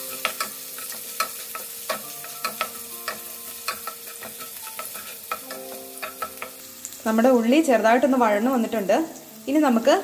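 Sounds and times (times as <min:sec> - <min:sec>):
wooden spatula stirring in pan: 0:00.0 - 0:06.6
oil sizzling in a pan: 0:00.0 - 0:10.0.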